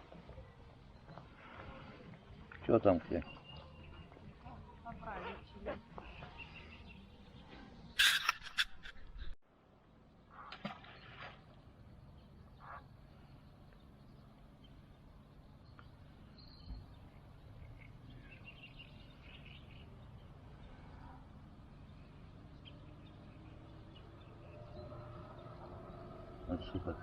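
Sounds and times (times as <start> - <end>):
faint bird chirps: 11.9 - 27.0.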